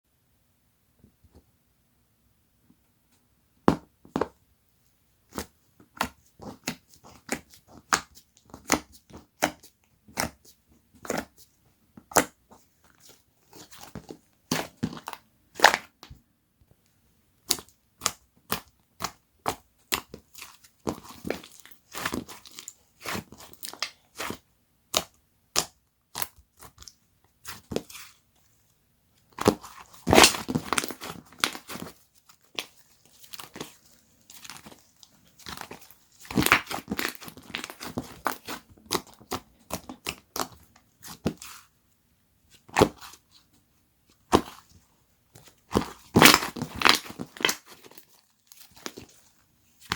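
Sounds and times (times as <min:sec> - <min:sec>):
slime popping and crackling: 0:29.4 - 0:41.6, 0:45.7 - 0:49.2.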